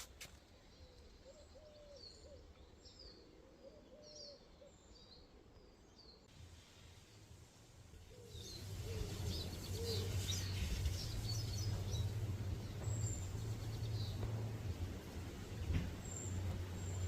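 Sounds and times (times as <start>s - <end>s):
small birds chirping: 8.0s - 17.0s.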